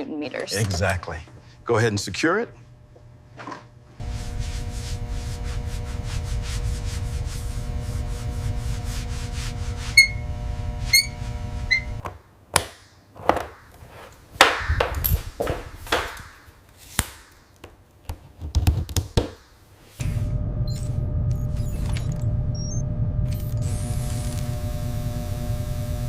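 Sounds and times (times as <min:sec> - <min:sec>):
machine hum: 0:01.2 - 0:12.1, 0:20.0 - 0:26.0
fast rubbing strokes: 0:04.0 - 0:10.2.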